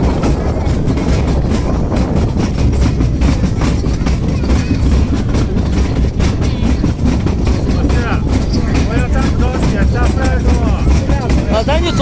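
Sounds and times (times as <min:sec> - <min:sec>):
train rumbling on track: 0:00.0 - 0:12.0
train wheels clicking and clattering: 0:00.0 - 0:12.0.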